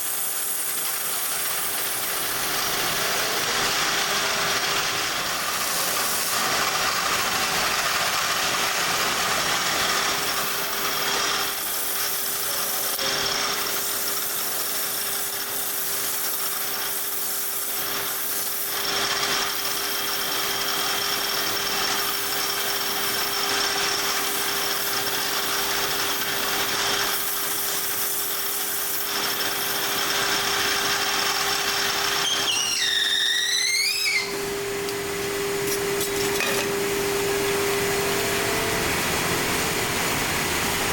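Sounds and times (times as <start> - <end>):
power tool grinding: 0.0 - 37.0
wavering squeal: 32.1 - 34.4.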